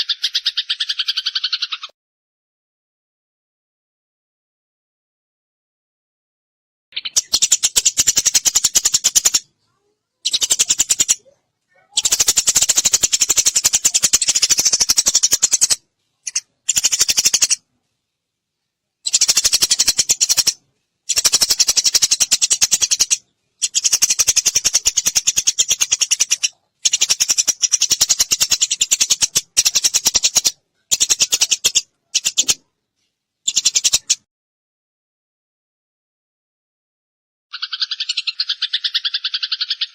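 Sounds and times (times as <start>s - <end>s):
sparrow chattering: 0.0s - 1.9s, 7.0s - 17.6s, 19.0s - 32.6s, 33.4s - 34.2s, 37.5s - 39.9s.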